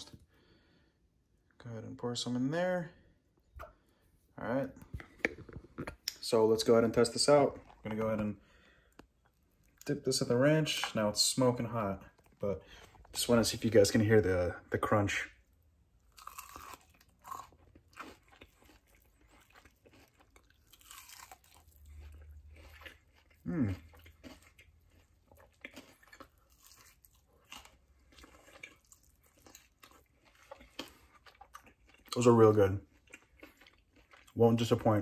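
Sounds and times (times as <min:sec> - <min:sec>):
crunching chicken wing: 0:16.0 - 0:34.9.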